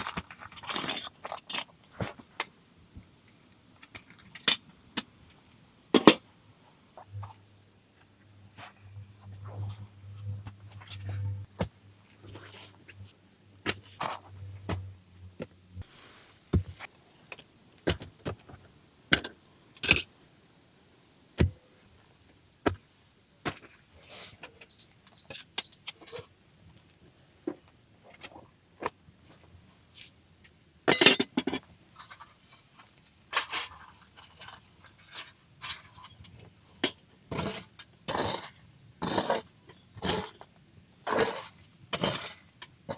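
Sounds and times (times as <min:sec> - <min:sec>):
low steady hum: 0:07.0 - 0:15.8.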